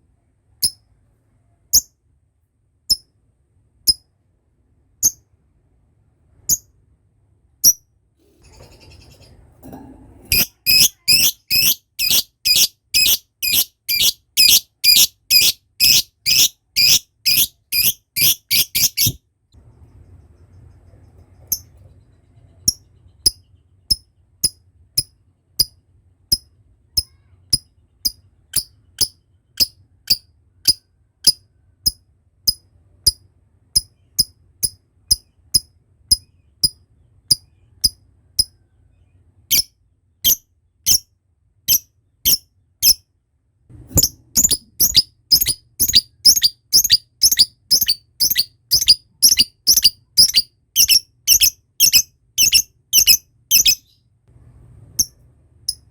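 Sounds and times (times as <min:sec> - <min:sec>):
lovebird high kek calls: 0:10.3 - 0:19.2, 0:44.4 - 0:53.9.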